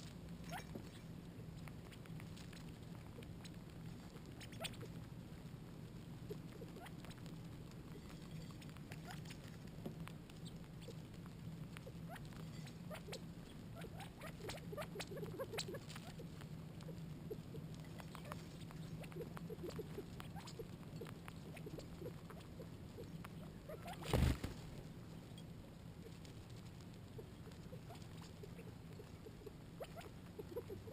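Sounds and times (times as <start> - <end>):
steady low hum: 0.0 - 30.9
light pecks and taps: 6.3 - 12.5.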